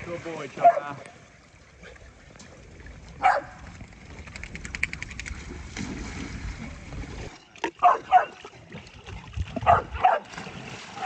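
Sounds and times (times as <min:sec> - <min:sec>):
dog barking: 0:00.6 - 0:00.9, 0:03.2 - 0:03.6, 0:07.8 - 0:08.3, 0:09.6 - 0:10.3.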